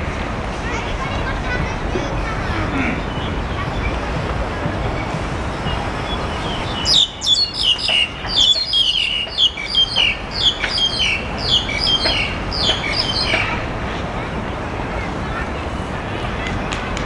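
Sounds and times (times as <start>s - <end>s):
small bird chirping: 5.7s - 13.5s.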